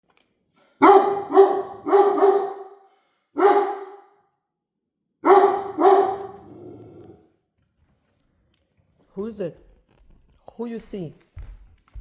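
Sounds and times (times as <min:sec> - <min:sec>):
puppy barking: 0:00.8 - 0:02.8, 0:03.4 - 0:04.1, 0:05.2 - 0:07.0.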